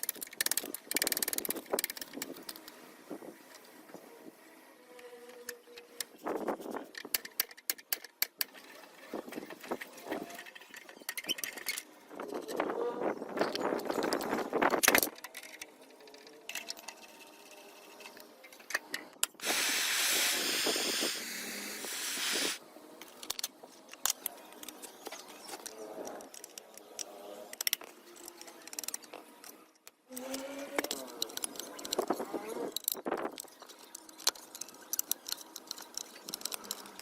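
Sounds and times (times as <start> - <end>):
spray hissing: 19.4 - 22.6.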